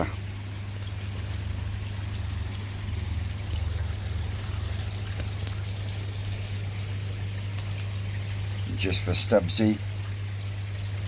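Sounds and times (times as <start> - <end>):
low steady hum: 0.0 - 11.0
water trickling into pond: 0.0 - 11.0.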